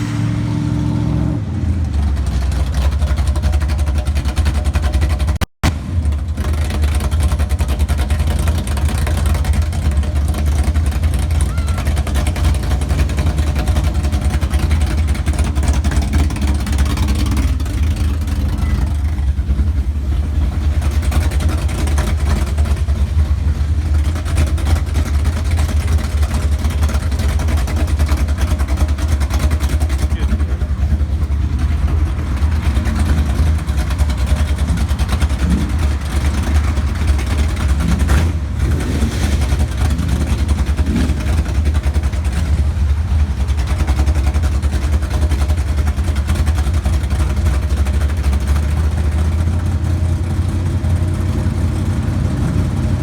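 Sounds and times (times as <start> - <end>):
car engine running steadily: 0.0 - 53.0
faint voices: 11.3 - 12.1, 18.2 - 19.5, 30.0 - 31.4.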